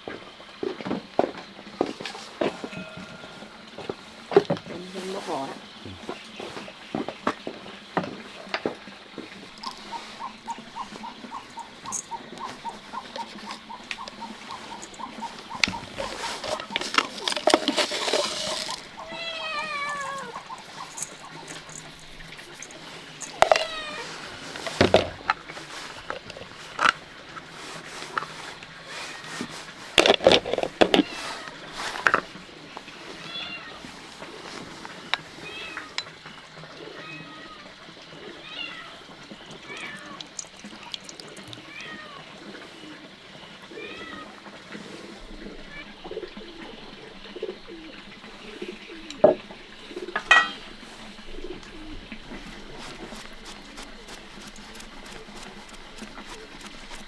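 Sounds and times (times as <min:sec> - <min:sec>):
low bird calls: 0:04.9 - 0:41.8
objects clattering and scraping: 0:08.0 - 0:33.2, 0:49.0 - 0:57.0
cat meowing: 0:19.0 - 0:20.6, 0:23.4 - 0:24.5, 0:38.4 - 0:39.0, 0:41.6 - 0:42.3, 0:43.7 - 0:44.4.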